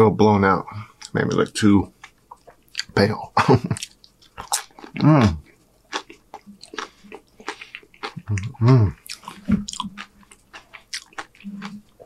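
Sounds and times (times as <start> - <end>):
chewing crunchy chips: 3.6 - 12.0
voiced sounds through full mouth: 6.6 - 9.9.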